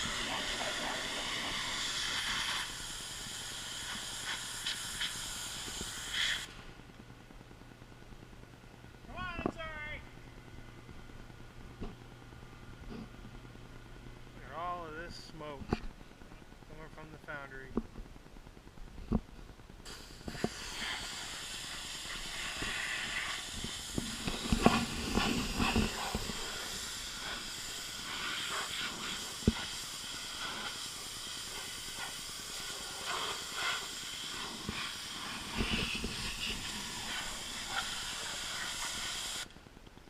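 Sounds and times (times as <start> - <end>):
pressure washer spray hissing: 0.0 - 6.6, 19.9 - 39.5.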